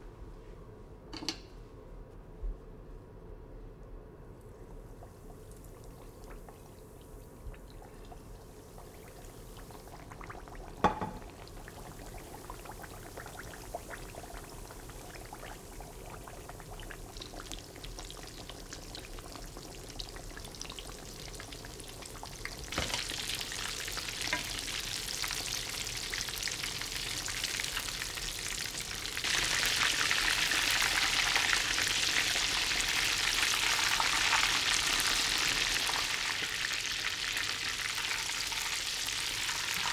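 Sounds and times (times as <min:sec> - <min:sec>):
food sizzling in a pan: 0:17.2 - 0:39.9.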